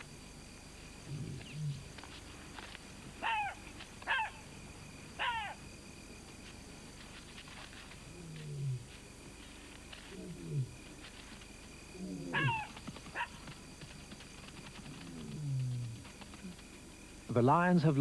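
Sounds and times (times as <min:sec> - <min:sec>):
night insects droning: 0:00.0 - 0:18.0
high falling yelps: 0:03.2 - 0:04.4, 0:05.2 - 0:05.6, 0:12.4 - 0:13.4.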